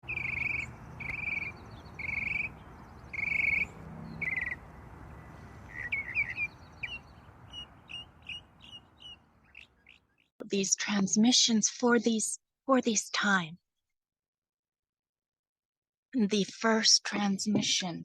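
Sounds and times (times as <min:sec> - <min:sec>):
birds calling: 0:00.0 - 0:10.3.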